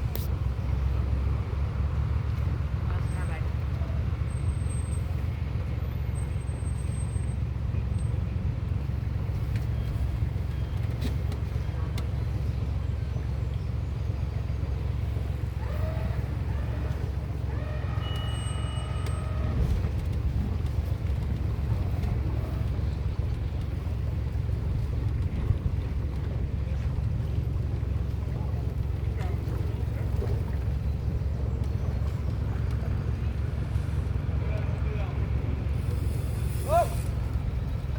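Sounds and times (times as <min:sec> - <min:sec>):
boat motor running: 0:00.0 - 0:37.9
faint voices: 0:10.2 - 0:37.9.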